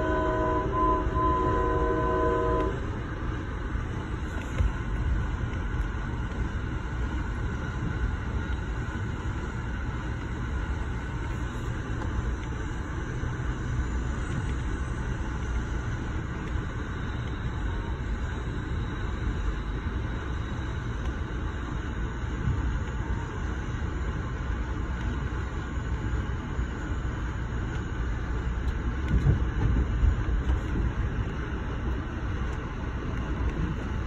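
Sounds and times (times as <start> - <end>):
multi-tone train horn: 0.0 - 3.0
train car rumbling on track: 0.0 - 34.0.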